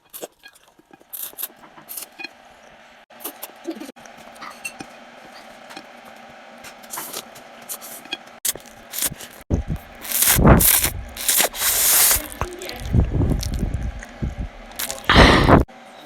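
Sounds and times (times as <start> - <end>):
loud chewing: 7.0 - 15.6.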